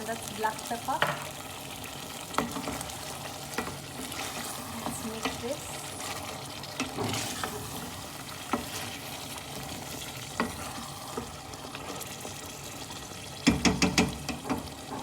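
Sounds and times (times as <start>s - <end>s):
curry sizzling in a pan: 0.0s - 15.0s
spoon scraping and clicking on pan: 2.3s - 2.9s, 3.5s - 5.4s, 6.8s - 8.9s, 10.3s - 11.3s.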